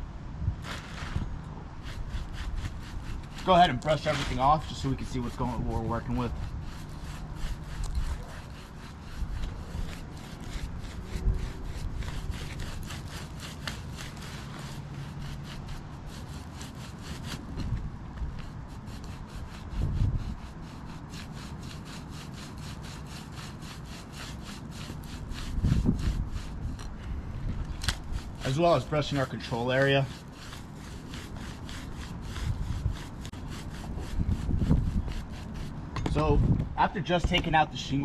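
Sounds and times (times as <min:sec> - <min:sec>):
brush sweeping roof shingles: 0:00.6 - 0:36.5
low bumps: 0:33.9 - 0:37.8.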